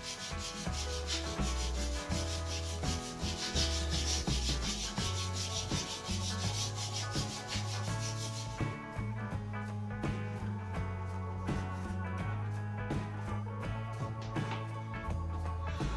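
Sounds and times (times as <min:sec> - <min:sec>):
sandpaper rubbing on wood: 0:00.0 - 0:08.8.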